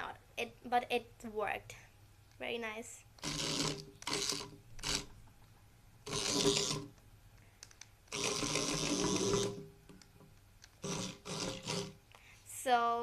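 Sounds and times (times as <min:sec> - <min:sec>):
small electric motor whirring: 0:03.2 - 0:05.1, 0:06.1 - 0:06.9, 0:08.1 - 0:09.6, 0:10.8 - 0:12.0.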